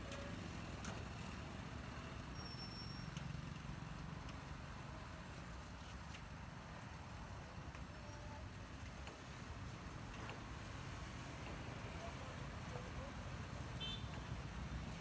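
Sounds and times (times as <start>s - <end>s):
low rumble of traffic: 6.3s - 15.0s.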